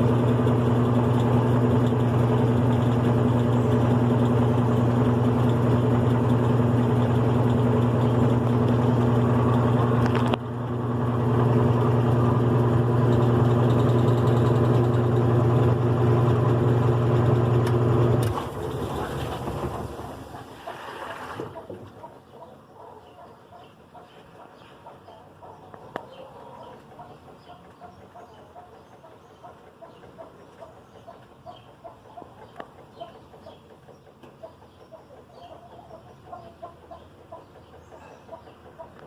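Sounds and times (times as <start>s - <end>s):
washing machine motor humming: 0.0s - 21.7s.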